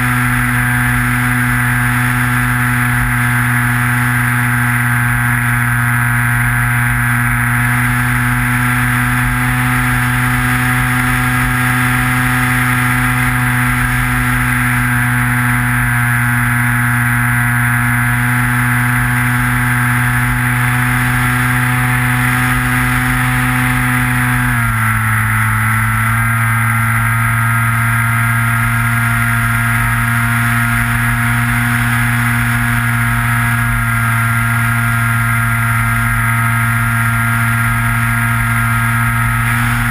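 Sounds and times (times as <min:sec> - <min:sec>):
model plane motor and propeller: 0:00.0 - 0:39.9.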